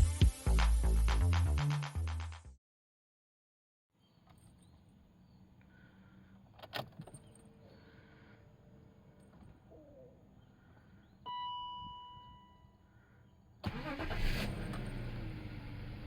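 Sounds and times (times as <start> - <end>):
car engine cranking and idling: 13.6 - 16.0.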